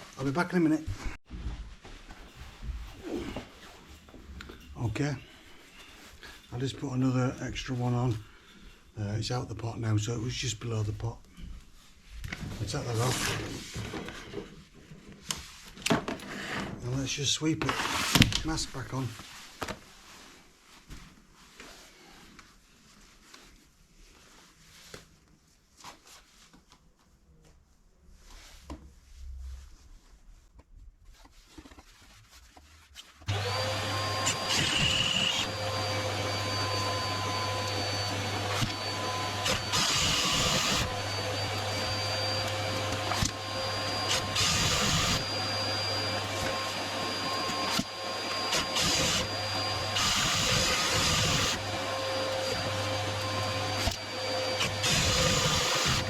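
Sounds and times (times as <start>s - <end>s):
faint knocks and rustles: 0.9s - 6.5s
vacuum motor whining: 33.3s - 56.0s.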